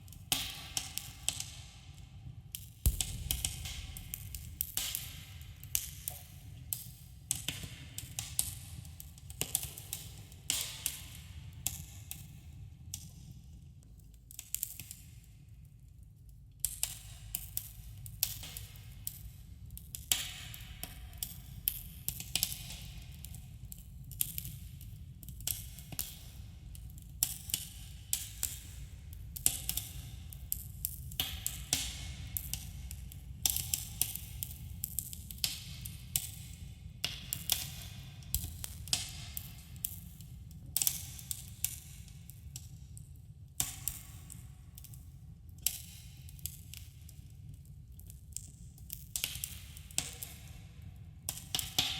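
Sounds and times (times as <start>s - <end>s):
low rumble: 2.9s - 5.6s
campfire crackling and popping: 2.9s - 6.0s.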